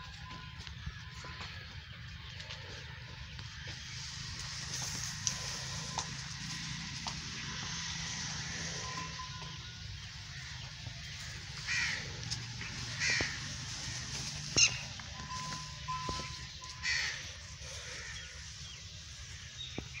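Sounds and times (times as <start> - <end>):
bird cawing: 4.2 - 19.6.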